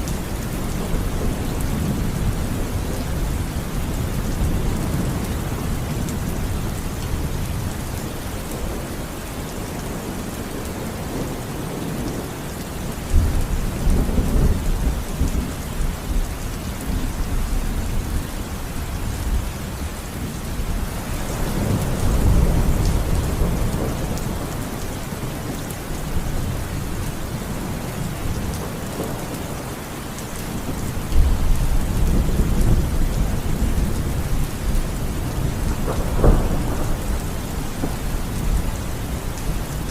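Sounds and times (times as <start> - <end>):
steady rain falling: 0.0 - 39.9
low thunder rumbling: 19.2 - 25.4, 30.4 - 39.9.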